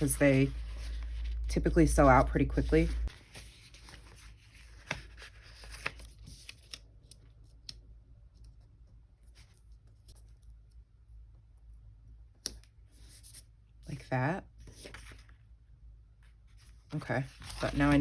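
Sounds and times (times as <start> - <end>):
paper rustling and clicks: 17.3 - 18.0.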